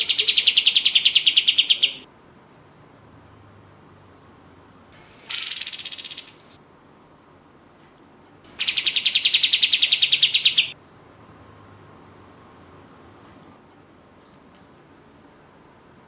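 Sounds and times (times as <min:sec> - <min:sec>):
bird singing rapid high notes: 0:00.0 - 0:02.0, 0:05.3 - 0:06.5, 0:08.6 - 0:10.8.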